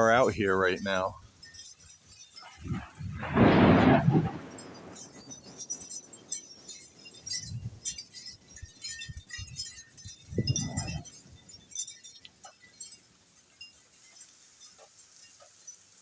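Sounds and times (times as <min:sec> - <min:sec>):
dripping rain ticks: 0:00.0 - 0:16.0
low rumble: 0:02.6 - 0:04.7.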